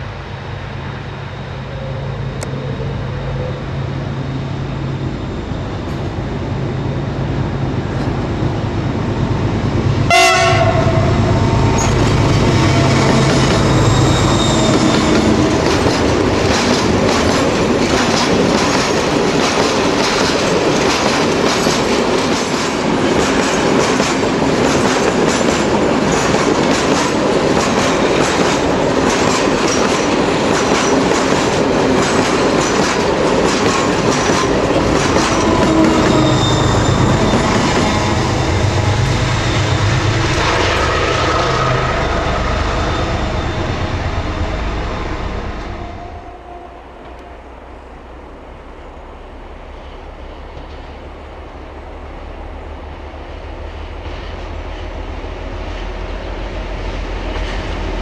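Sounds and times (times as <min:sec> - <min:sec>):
diesel locomotive rumbling: 0:00.0 - 0:58.0
wheel squeal: 0:11.7 - 0:15.7, 0:35.2 - 0:39.8
train wheels clattering over rail joints: 0:11.7 - 0:41.4.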